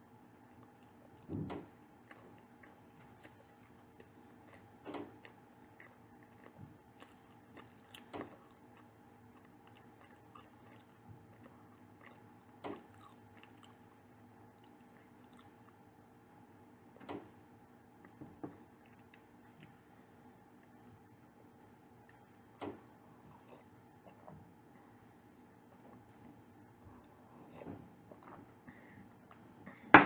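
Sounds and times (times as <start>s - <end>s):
person biting and chewing pastry: 1.8s - 16.0s.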